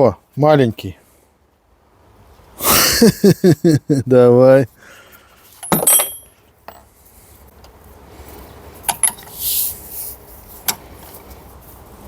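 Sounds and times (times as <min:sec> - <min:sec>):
hand tools clinking on metal: 0:05.5 - 0:06.9
short hiss: 0:09.2 - 0:10.8.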